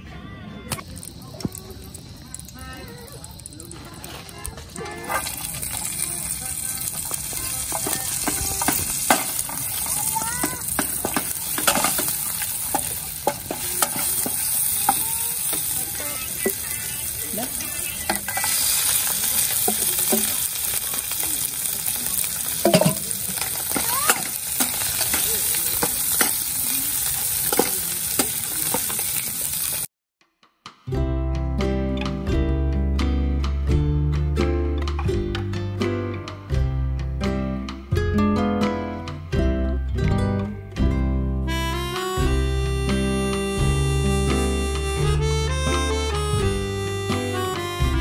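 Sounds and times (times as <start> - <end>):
food sizzling in oil: 0.8 - 29.9
wooden spatula stirring in pan: 3.3 - 29.8.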